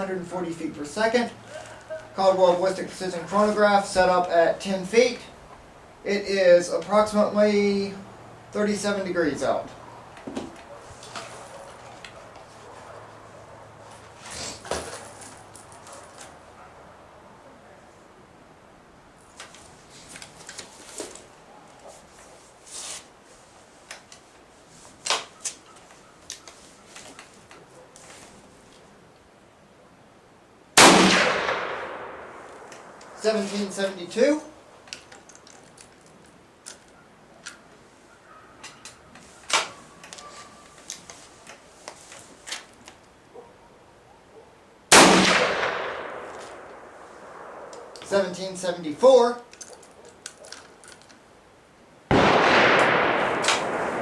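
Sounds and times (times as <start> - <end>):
rifle shot ringing out: 30.8 - 32.5, 44.9 - 47.9, 52.1 - 54.0.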